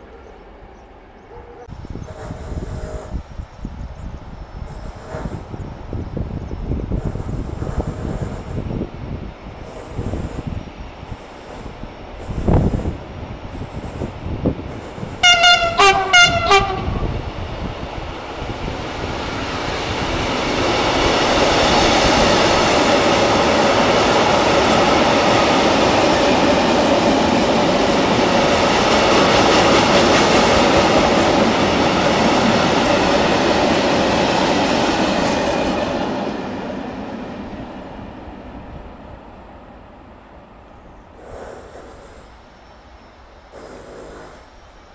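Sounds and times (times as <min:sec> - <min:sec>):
train passing: 0:00.0 - 0:44.9
train horn blasts: 0:15.2 - 0:17.2.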